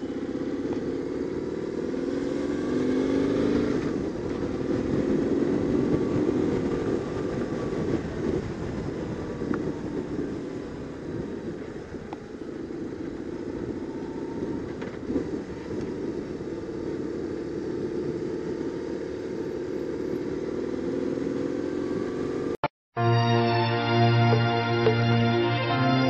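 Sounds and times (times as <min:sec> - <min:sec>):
motorcycle engine running: 0:00.0 - 0:22.6
background music: 0:23.0 - 0:26.0.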